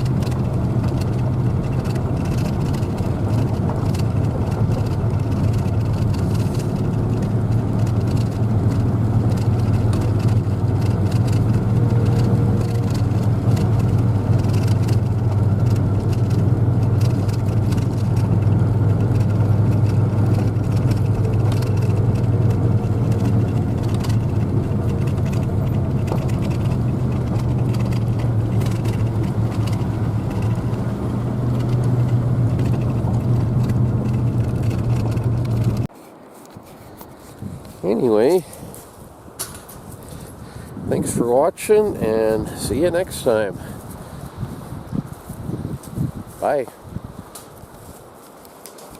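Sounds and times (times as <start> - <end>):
low engine drone: 0.0 - 35.9
road noise: 0.0 - 48.9.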